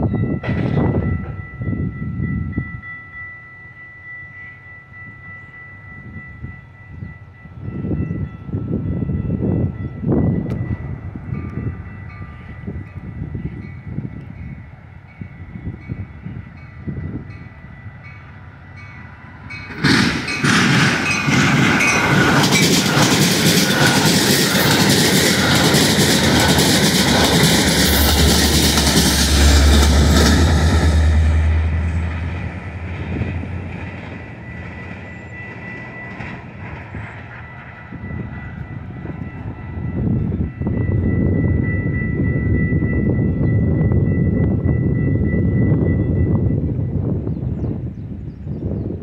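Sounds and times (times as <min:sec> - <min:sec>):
diesel locomotive engine hum: 0:00.0 - 0:49.0
train wheels clattering: 0:19.6 - 0:39.2.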